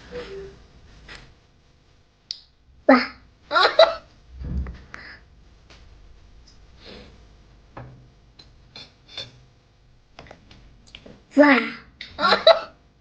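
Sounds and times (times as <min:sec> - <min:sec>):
dull low thump: 0:04.3 - 0:05.0.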